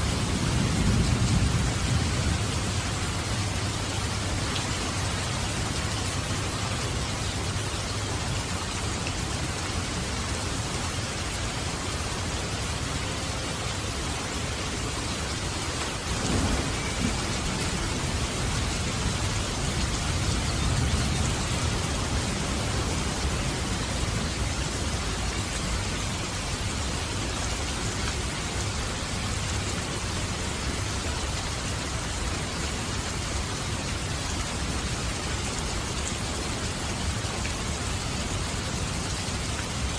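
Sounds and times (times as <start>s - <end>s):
thunder rumbling: 0.0s - 6.6s, 15.9s - 25.0s
heavy rain falling: 0.0s - 39.9s.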